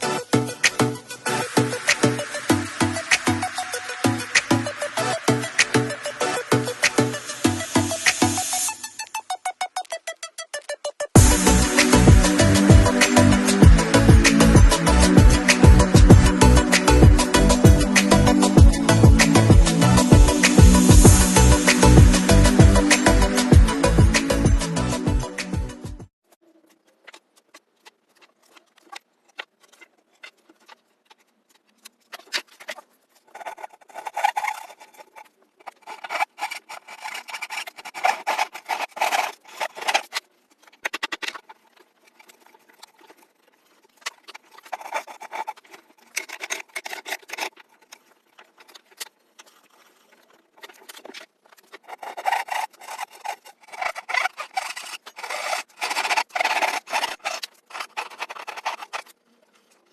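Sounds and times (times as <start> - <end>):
hand sanding strokes: 0.0 - 8.8, 11.2 - 24.8, 33.3 - 40.1, 51.8 - 59.1.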